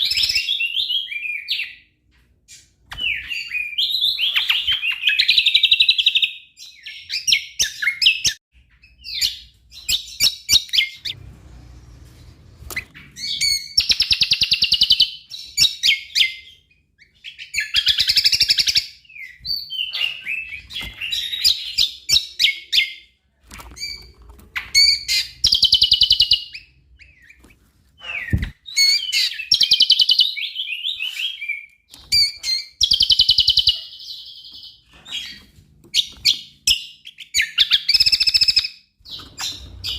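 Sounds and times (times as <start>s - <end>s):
bird singing with trills: 23.9s - 27.4s, 28.0s - 35.4s, 36.0s - 39.9s.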